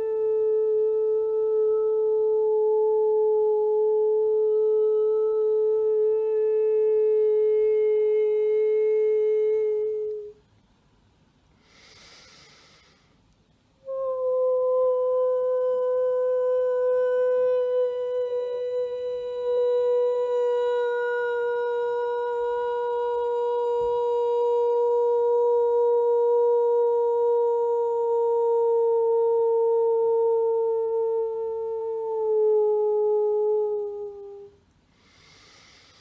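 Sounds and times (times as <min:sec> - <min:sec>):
woman overtone singing: 0:13.8 - 0:34.6.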